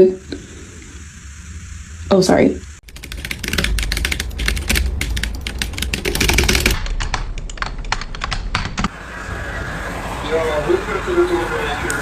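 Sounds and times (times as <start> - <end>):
rapid clicking and tapping: 2.8 - 8.9.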